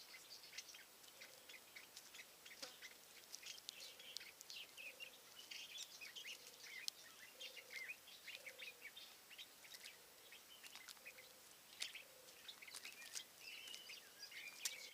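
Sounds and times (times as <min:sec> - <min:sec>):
songbirds chirping and trilling: 0:00.0 - 0:14.9.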